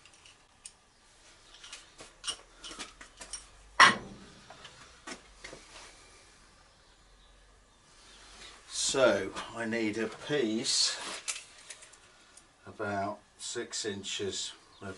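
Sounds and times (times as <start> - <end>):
small metal parts clicking: 0.0 - 0.8, 11.2 - 12.5.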